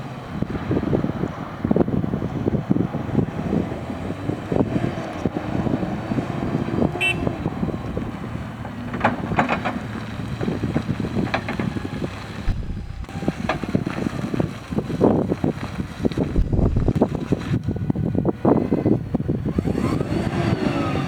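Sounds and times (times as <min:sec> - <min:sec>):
forklift engine running: 0:00.0 - 0:21.0
wind buffeting microphone: 0:00.0 - 0:21.0
clicks and knocks: 0:08.6 - 0:14.0.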